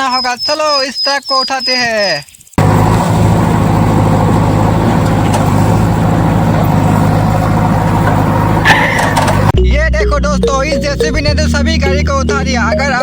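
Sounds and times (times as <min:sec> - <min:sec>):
low engine drone: 0:02.6 - 0:09.6.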